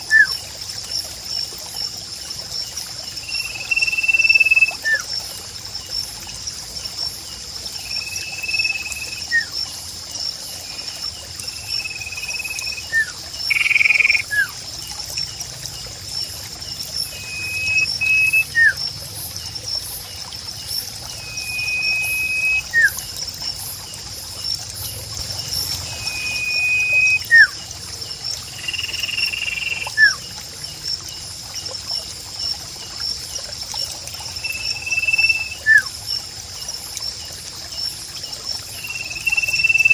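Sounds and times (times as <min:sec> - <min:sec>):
trickling water: 0:00.0 - 0:39.9
bird whistled notes: 0:17.1 - 0:18.8, 0:21.2 - 0:23.0, 0:25.9 - 0:27.6, 0:34.4 - 0:35.9.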